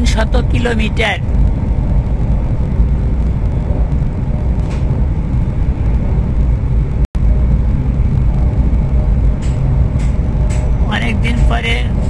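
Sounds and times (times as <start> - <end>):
high-speed train running rumble: 0.0 - 12.0.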